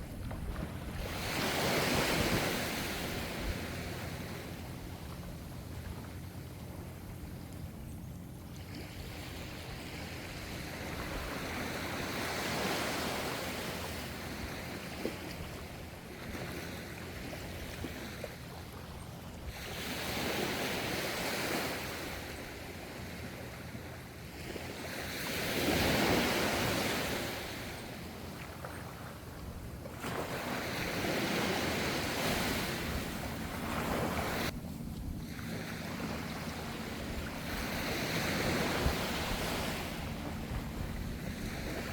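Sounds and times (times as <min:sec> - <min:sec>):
ocean waves washing in: 0:24.7 - 0:41.9.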